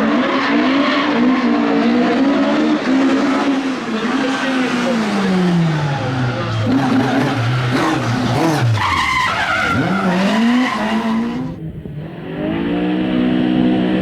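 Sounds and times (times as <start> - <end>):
rally car engine revving: 0.0 - 14.0
tyres squealing: 5.8 - 11.6.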